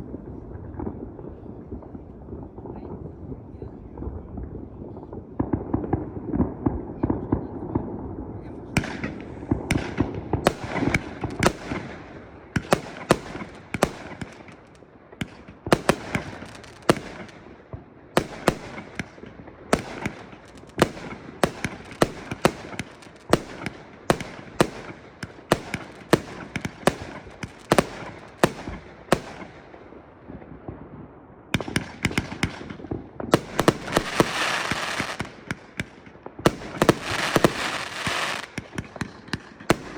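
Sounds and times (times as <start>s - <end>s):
fireworks bangs: 0.0s - 39.9s
fireworks crackling hiss: 8.9s - 17.6s, 32.9s - 35.8s, 36.4s - 39.9s.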